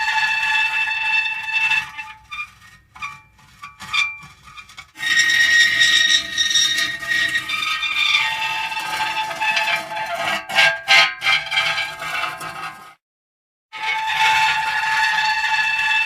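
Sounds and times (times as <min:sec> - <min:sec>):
metal creaking: 0:01.8 - 0:12.8.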